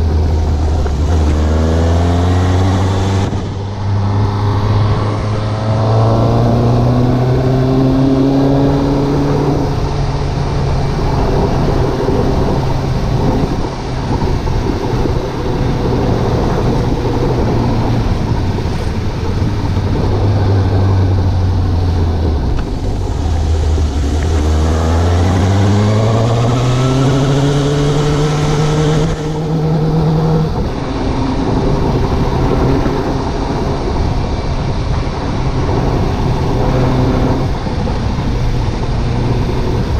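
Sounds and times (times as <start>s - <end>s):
broad rushing noise: 0.0s - 39.9s
motorcycle engine running: 0.0s - 39.9s.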